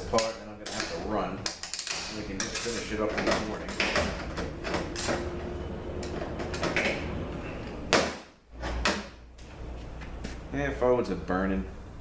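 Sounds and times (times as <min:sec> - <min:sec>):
metal parts scraping and clinking: 0:00.6 - 0:05.4.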